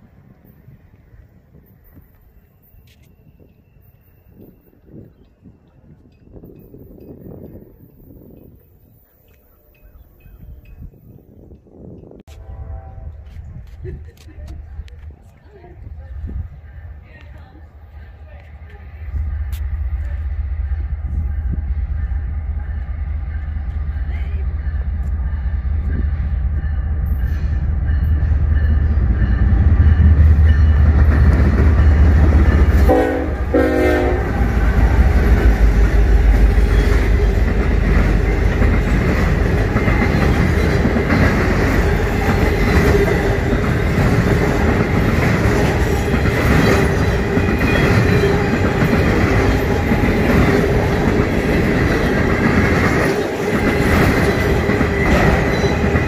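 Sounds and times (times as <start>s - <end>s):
train horn blast: 12.3s - 13.6s, 32.0s - 37.5s.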